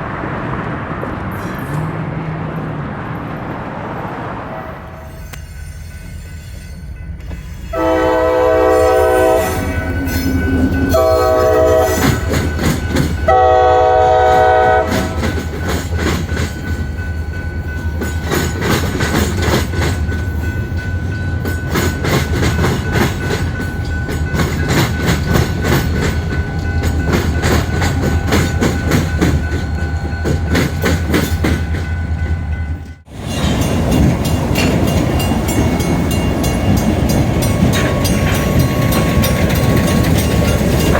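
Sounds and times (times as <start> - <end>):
train engine rumble: 0.0 - 40.9
locomotive air horn blasts: 7.7 - 12.4, 13.3 - 15.3
wheels clicking over rail joints: 9.8 - 13.6, 14.3 - 40.9.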